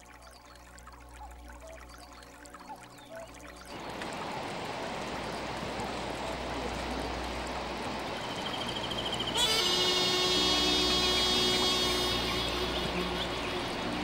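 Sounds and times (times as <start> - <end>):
mountain stream rushing: 3.7 - 14.0.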